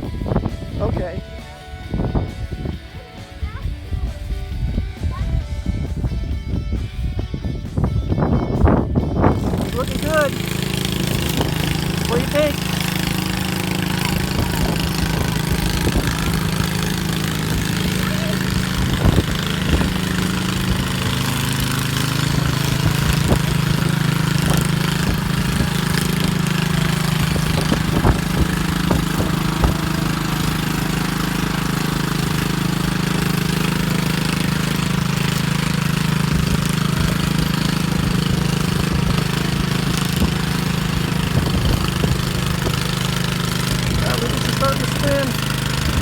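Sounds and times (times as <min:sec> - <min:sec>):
tractor engine running steadily: 0:00.0 - 0:46.0
short engine knocks: 0:09.4 - 0:46.0.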